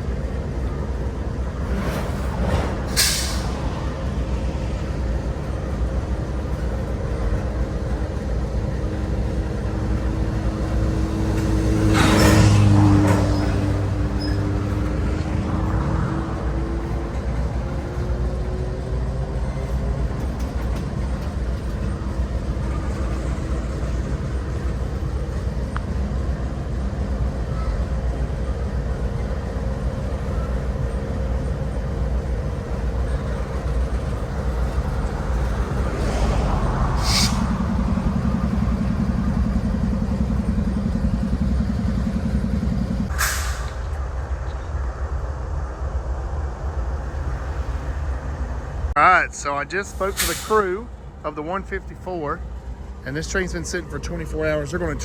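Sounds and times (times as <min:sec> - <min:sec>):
diesel locomotive idling: 0:00.0 - 0:55.0
sharp hiss of air: 0:36.9 - 0:37.6, 0:43.1 - 0:43.8.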